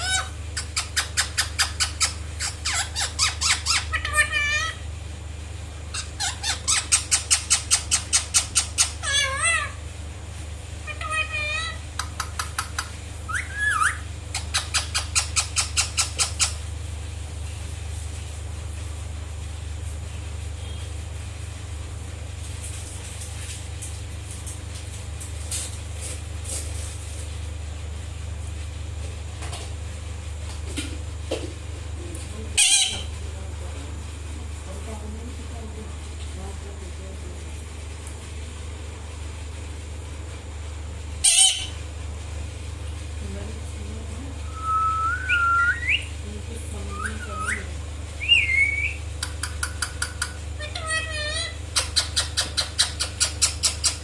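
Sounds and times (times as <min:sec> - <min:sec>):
parrot sharp calls: 0:00.0 - 0:04.8, 0:05.9 - 0:09.8, 0:10.8 - 0:16.6, 0:32.6 - 0:33.1, 0:41.2 - 0:41.8.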